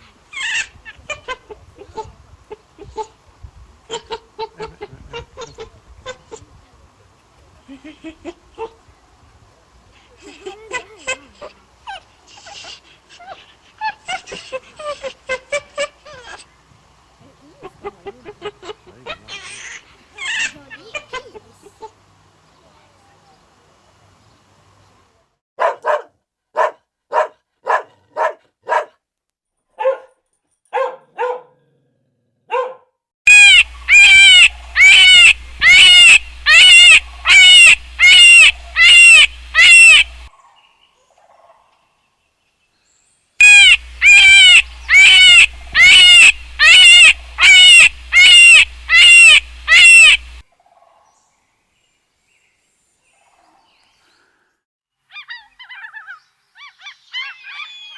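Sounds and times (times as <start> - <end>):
animal barking calls: 25.6 - 29.0, 29.8 - 30.1, 30.8 - 31.8, 32.4 - 40.3, 43.4 - 51.1
rapid high animal calls: 33.3 - 40.3, 43.4 - 50.4, 55.1 - 57.9.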